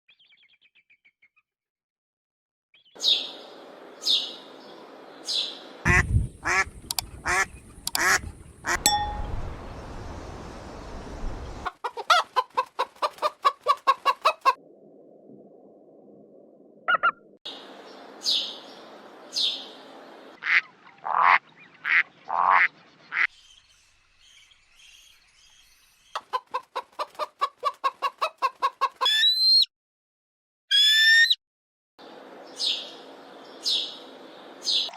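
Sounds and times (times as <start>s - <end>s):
rising squealing bird call: 29.0s - 29.7s, 30.7s - 31.4s.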